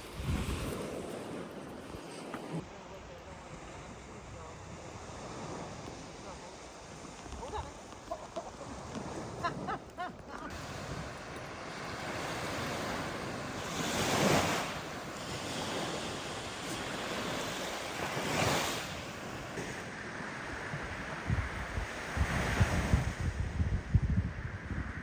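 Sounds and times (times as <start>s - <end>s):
wind buffeting microphone: 0.0s - 2.6s, 4.1s - 25.0s
wind rushing: 0.0s - 2.6s.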